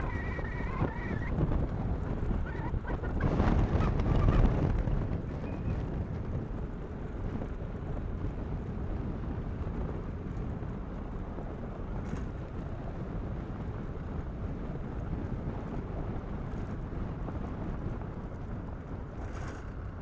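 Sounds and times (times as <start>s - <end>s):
bicycle tyre noise: 0.0s - 20.0s
wind on microphone: 0.0s - 20.0s.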